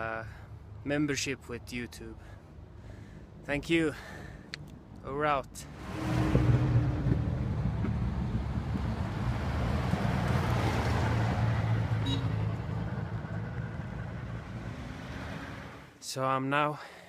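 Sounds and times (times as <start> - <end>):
wind and road noise: 0.0 - 16.0
car engine droning: 5.6 - 15.9.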